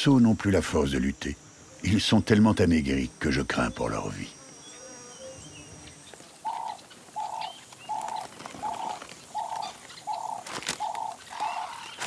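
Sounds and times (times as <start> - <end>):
faint bird chirps: 4.6 - 12.0.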